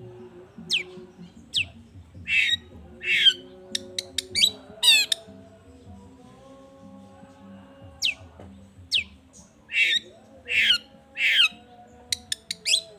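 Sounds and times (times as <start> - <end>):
faint soft music: 0.0 - 12.9
harsh rasping bird squawks: 2.3 - 5.2, 9.7 - 11.5
fast buzzy bird trill: 9.7 - 11.6, 12.2 - 12.9.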